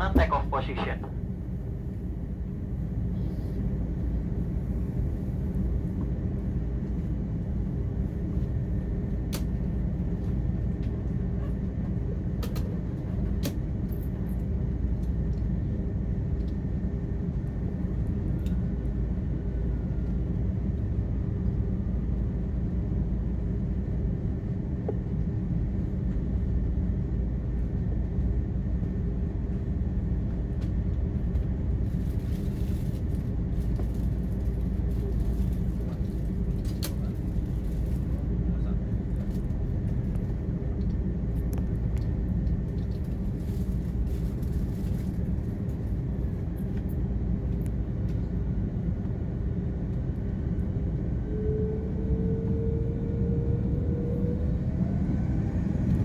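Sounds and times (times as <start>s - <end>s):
jet engines rumbling: 0.0s - 21.0s, 45.2s - 56.0s.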